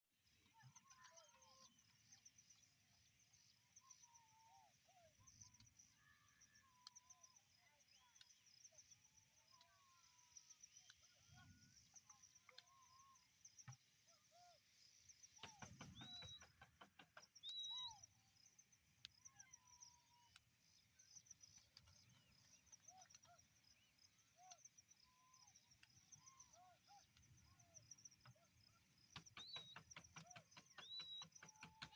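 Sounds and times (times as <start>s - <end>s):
flock of birds chirping: 0.3s - 31.9s
whistled bird notes: 14.1s - 16.7s, 17.4s - 18.3s, 19.2s - 31.9s
sharp clicks: 29.1s - 31.9s.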